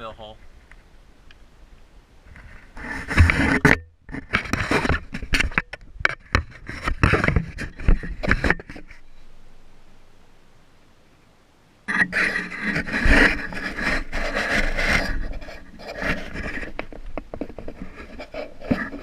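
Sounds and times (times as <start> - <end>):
plastic tubing scraping and clicking: 2.3 - 9.0, 11.9 - 19.0.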